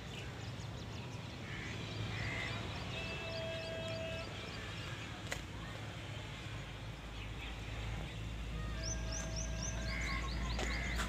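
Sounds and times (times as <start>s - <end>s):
birds chirping: 8.6s - 11.0s.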